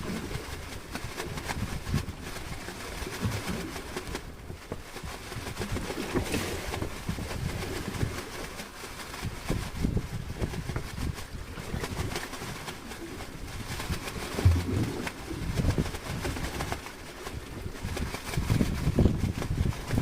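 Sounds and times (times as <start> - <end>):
strong wind buffeting microphone: 0.0 - 3.7, 9.1 - 20.0.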